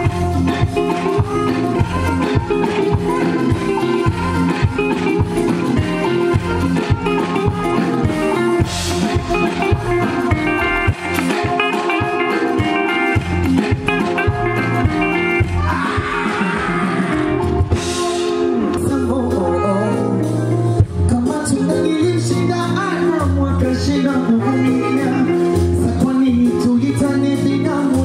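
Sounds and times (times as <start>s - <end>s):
person singing: 0.0s - 13.2s, 13.9s - 28.0s
steady drum beat: 0.0s - 19.4s
guitar and bass: 0.0s - 28.0s.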